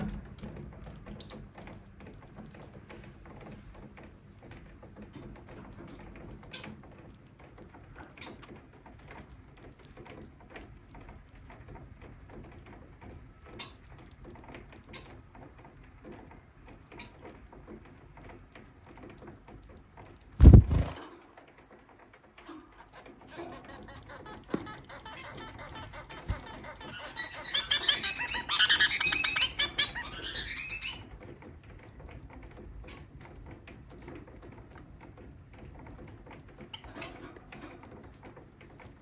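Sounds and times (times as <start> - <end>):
finches chirping: 20.4 - 21.0, 22.8 - 31.1
steady low hiss: 20.4 - 21.0.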